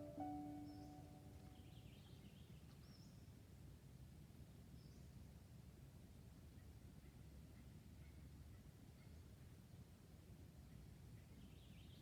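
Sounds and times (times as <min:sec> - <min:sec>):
faint bird chirp: 0:00.0 - 0:03.2.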